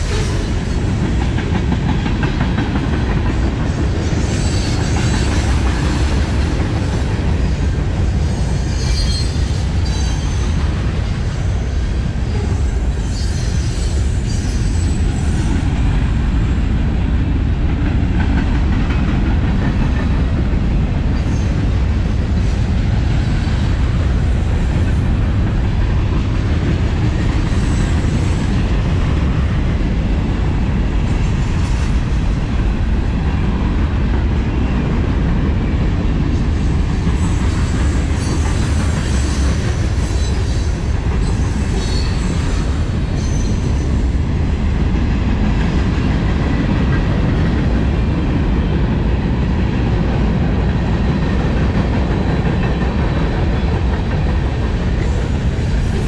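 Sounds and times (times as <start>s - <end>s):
train wheels rumbling and clattering: 0.0s - 56.0s
high wheel squeals: 8.2s - 10.6s, 37.2s - 44.0s.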